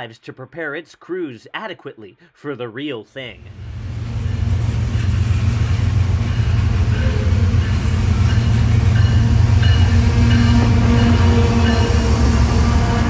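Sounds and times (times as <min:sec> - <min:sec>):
train rumbling by: 0:03.4 - 0:13.0.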